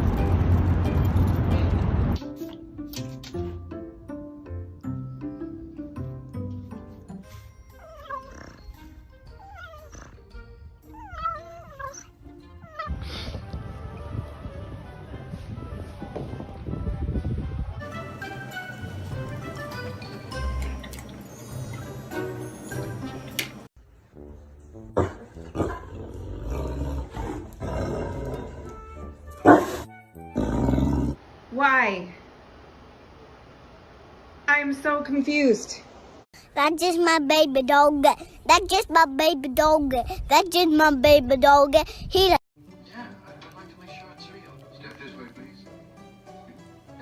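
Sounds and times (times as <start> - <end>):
background music: 0.0 - 31.2, 42.6 - 47.0.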